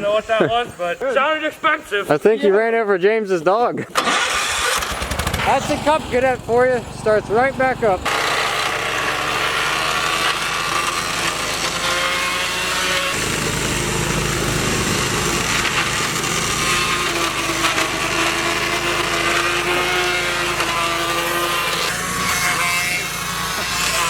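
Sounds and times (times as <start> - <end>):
riding mower cutting brush: 4.0 - 24.0.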